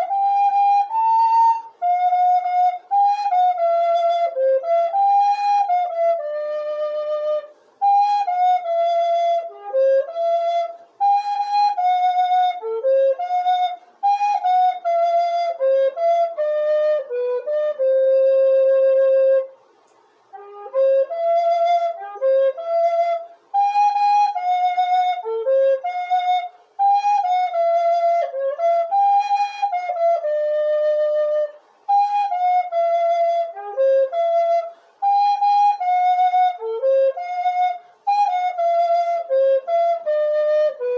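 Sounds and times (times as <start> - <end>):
solo flute hymn melody: 0.0 - 40.9
flute player breathing: 7.4 - 7.8, 34.6 - 35.2, 37.8 - 38.1.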